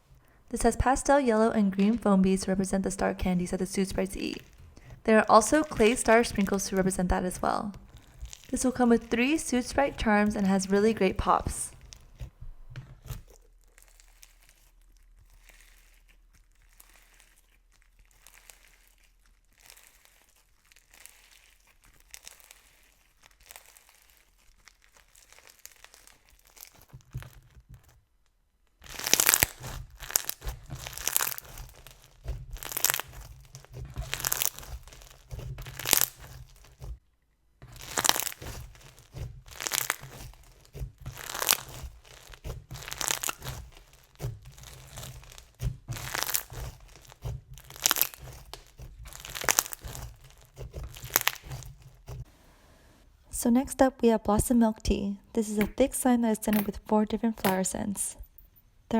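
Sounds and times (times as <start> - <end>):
foam slime crunching and popping: 1.8 - 37.0, 37.6 - 52.3.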